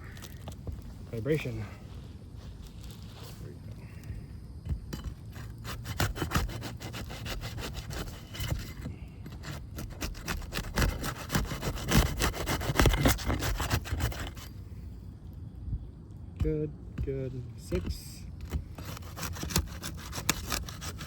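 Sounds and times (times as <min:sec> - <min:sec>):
crowbar scraping roof shingles: 0:05.0 - 0:14.5, 0:18.4 - 0:21.0.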